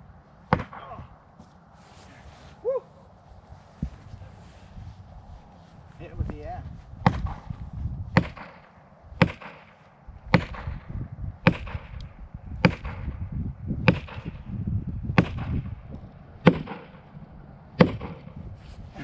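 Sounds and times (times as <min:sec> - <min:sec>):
axe striking a tree: 0:00.5 - 0:01.1, 0:07.0 - 0:07.5, 0:08.1 - 0:14.4, 0:15.2 - 0:15.7, 0:16.4 - 0:17.0, 0:17.8 - 0:18.4.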